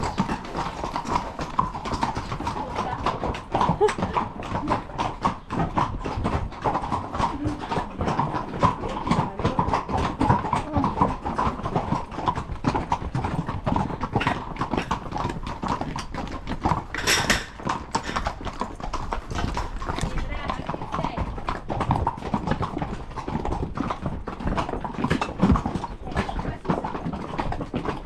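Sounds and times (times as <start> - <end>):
horse hooves clip-clopping: 0.0 - 28.0.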